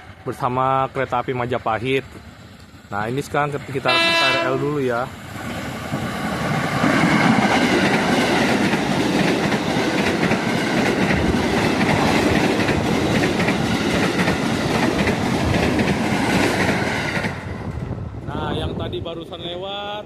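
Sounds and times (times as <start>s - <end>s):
electric train passing: 0.0s - 20.0s
train wheels clacking on rail joints: 5.5s - 17.5s.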